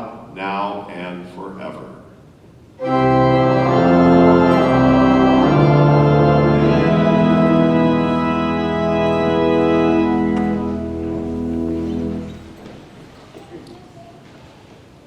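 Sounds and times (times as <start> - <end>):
church organ chords: 2.8 - 13.4.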